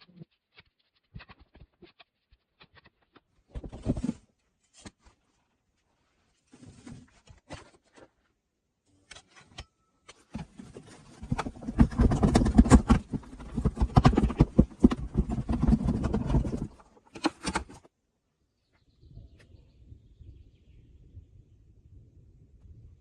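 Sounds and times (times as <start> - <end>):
knocking scraping and rubbing: 10.1 - 17.9.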